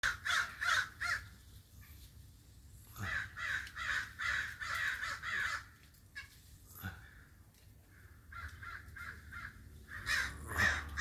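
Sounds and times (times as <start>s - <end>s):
crow cawing: 0.0s - 1.3s, 3.0s - 6.3s, 7.0s - 11.0s.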